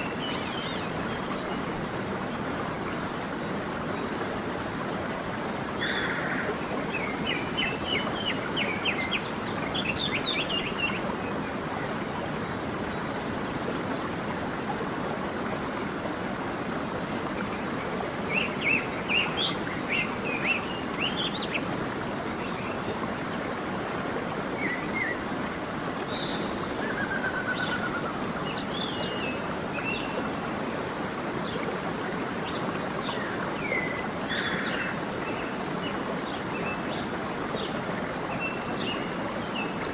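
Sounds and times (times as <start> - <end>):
stream running over stones: 0.0 - 39.9
songbirds chirping: 5.8 - 14.8.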